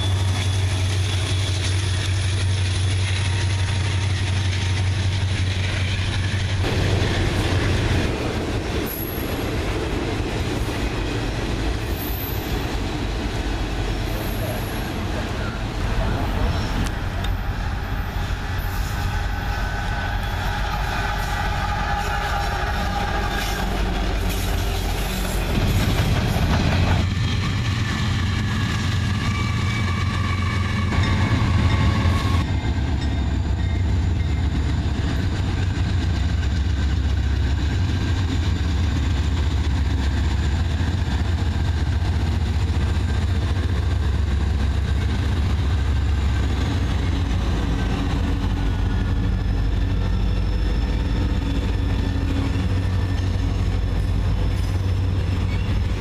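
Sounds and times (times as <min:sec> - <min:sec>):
locomotive engine rumble: 0:00.0 - 0:56.0
wheels rolling on rail: 0:00.0 - 0:56.0.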